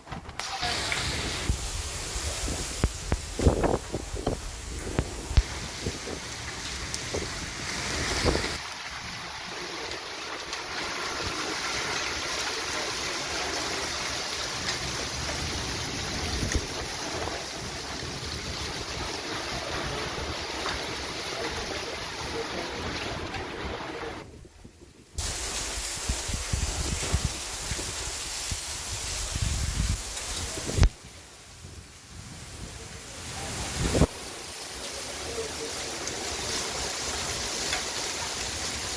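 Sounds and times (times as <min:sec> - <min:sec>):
wind on microphone: 0:00.0 - 0:08.6, 0:23.2 - 0:34.2
heavy rain pouring: 0:00.0 - 0:38.9.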